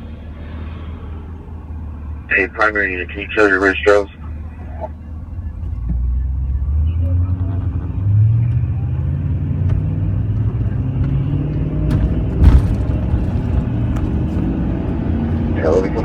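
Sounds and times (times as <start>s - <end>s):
car engine accelerating: 4.2s - 16.0s
loud thump: 11.8s - 14.6s.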